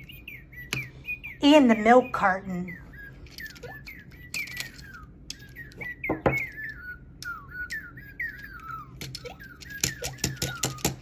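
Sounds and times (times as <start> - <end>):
bird-like chirps and whistles: 0.0 - 11.0
toys clicking and knocking: 3.0 - 11.0.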